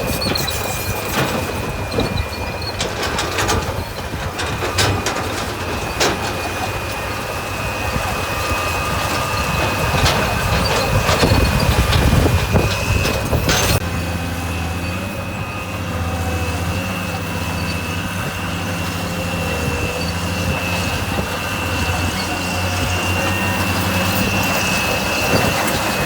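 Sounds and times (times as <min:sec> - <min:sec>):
heavy diesel engine running: 0:00.0 - 0:26.0.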